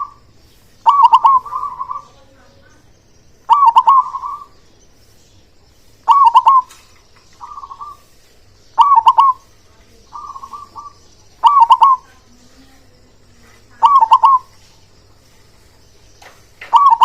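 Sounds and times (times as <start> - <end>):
dove cooing: 0.0 - 2.8, 3.4 - 4.6, 6.0 - 6.8, 7.4 - 8.1, 8.7 - 14.7, 16.6 - 17.0.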